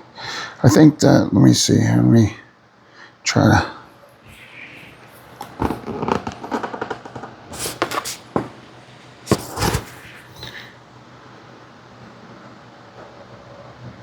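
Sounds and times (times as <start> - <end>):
plastic clicks and rustles: 5.1 - 8.4.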